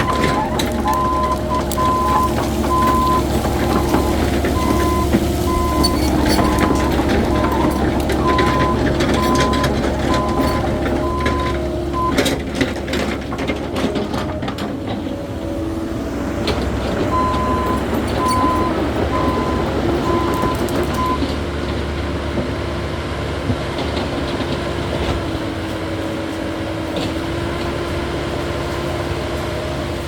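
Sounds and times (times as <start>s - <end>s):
warning alarm beeping: 0.0s - 12.4s, 17.1s - 21.2s
excavator diesel engine running: 0.0s - 30.0s.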